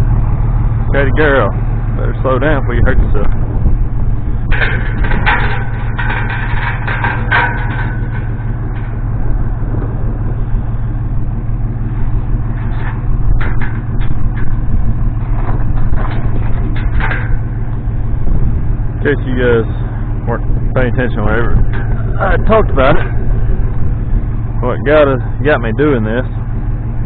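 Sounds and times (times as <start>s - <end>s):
vehicle engine idling: 0.0s - 27.0s
clinks and knocks: 4.4s - 9.3s, 11.8s - 19.0s.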